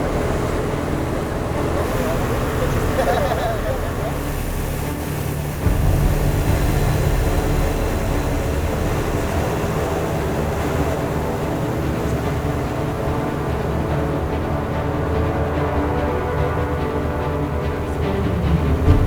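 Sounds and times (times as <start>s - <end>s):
propeller plane engine droning: 0.0s - 19.0s.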